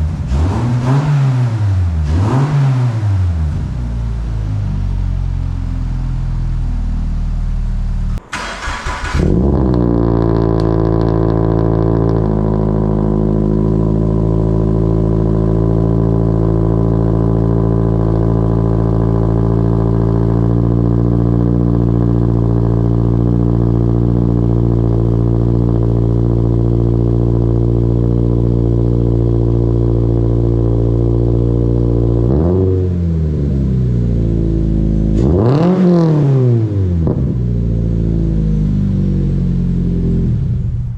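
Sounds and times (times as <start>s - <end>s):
car engine revving: 0.0s - 40.9s
car engine idling: 3.5s - 32.2s
car engine starter cranking: 8.1s - 9.9s.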